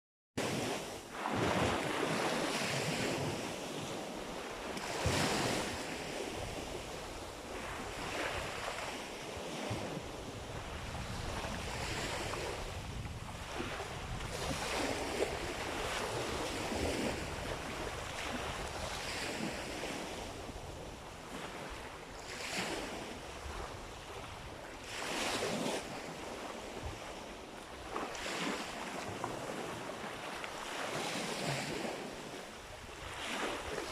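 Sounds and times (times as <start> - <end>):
sea waves washing in: 0.4 - 33.9
wind buffeting microphone: 4.9 - 21.1.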